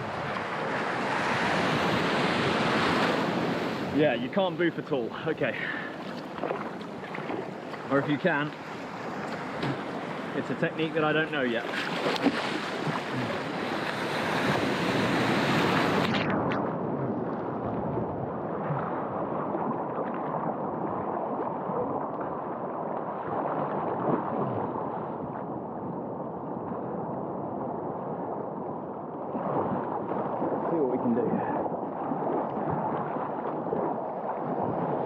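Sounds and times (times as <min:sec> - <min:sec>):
ocean surf: 0:00.0 - 0:17.7
water rushing and splashing: 0:00.0 - 0:25.3, 0:29.2 - 0:35.0
wind on microphone: 0:00.0 - 0:35.0.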